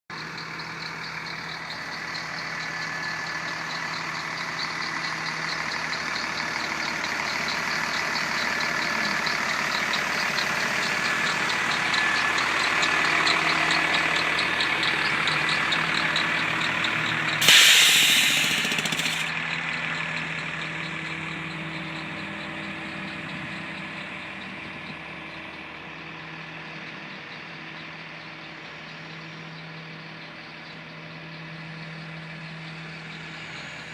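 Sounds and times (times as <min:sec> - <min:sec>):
diesel truck engine idling: 0:00.1 - 0:26.1
air valve hissing: 0:17.4 - 0:19.3.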